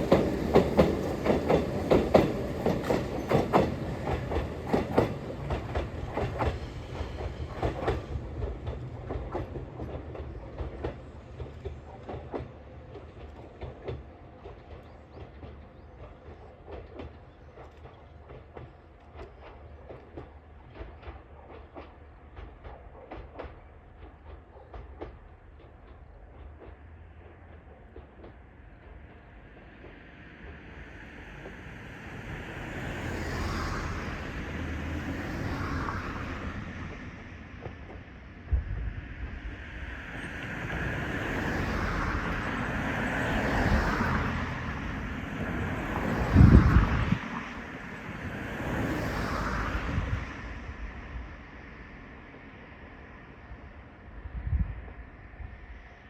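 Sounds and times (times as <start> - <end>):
wind buffeting microphone: 38.5 - 51.4, 54.1 - 55.7.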